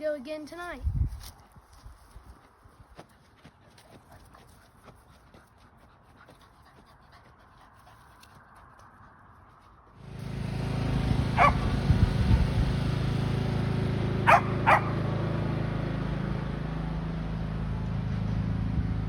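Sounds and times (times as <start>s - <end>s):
engine running: 8.6s - 19.0s
dog barking: 11.4s - 11.7s, 14.3s - 15.0s.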